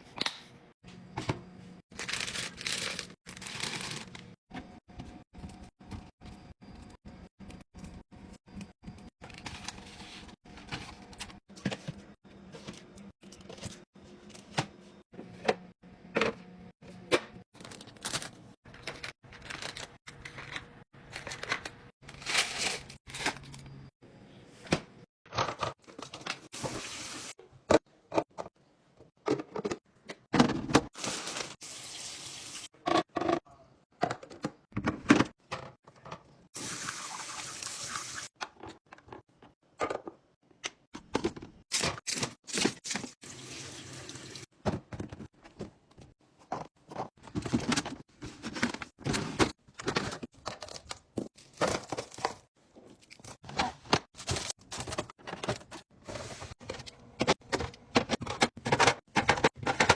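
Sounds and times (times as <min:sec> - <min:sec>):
containers clicking and knocking: 0:56.6 - 0:59.9.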